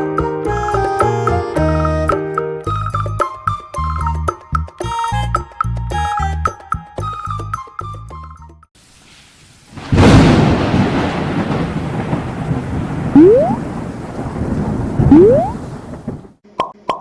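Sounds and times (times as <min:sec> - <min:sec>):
rain-like rushing noise: 0:08.8 - 0:16.4
thunder crack: 0:09.7 - 0:16.4.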